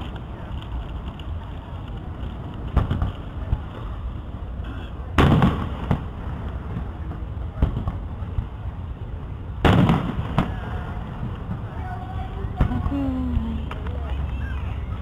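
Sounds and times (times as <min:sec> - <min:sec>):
fireworks rumble: 0:00.0 - 0:15.0
fireworks bangs: 0:02.7 - 0:03.7, 0:05.1 - 0:08.6, 0:09.6 - 0:13.5.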